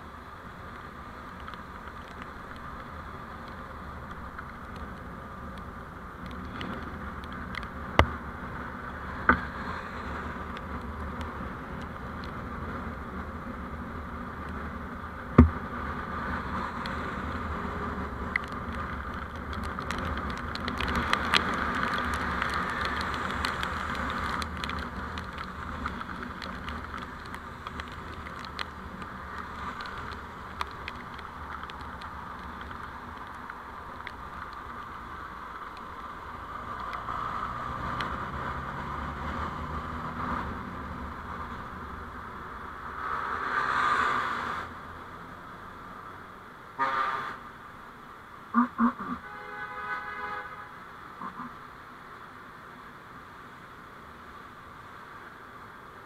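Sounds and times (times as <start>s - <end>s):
vehicle road and engine noise: 0.0s - 56.0s
sharp knocks: 15.4s - 15.6s.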